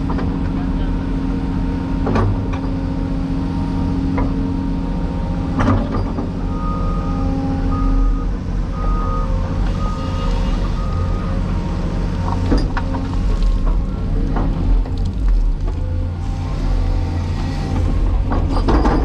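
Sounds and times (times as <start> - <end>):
excavator diesel engine running: 0.0 - 19.0
reversing alarm beeping: 6.4 - 11.5.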